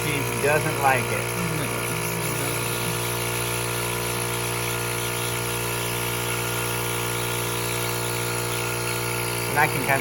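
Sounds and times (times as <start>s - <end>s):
vacuum pump humming: 0.0s - 10.0s.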